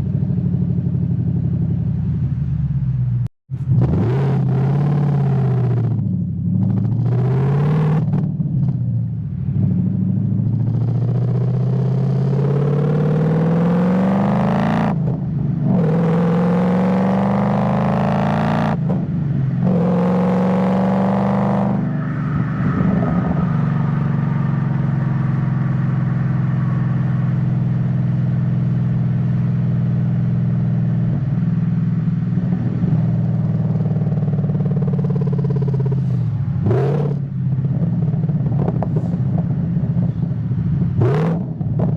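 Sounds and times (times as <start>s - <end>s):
car engine accelerating through gears: 3.6s - 8.8s, 9.6s - 29.4s, 32.2s - 40.2s, 40.9s - 41.9s.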